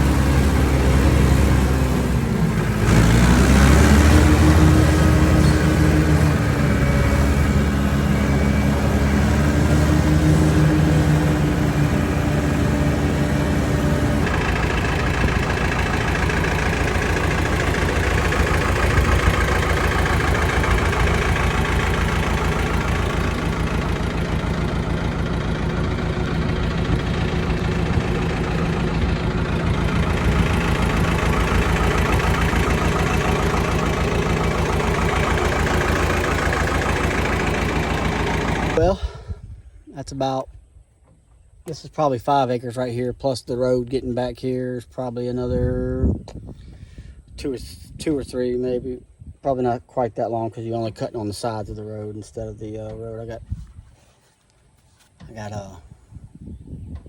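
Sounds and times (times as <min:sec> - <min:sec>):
rotary cutter mowing: 0:00.0 - 0:38.8
tractor engine running: 0:00.0 - 0:39.4.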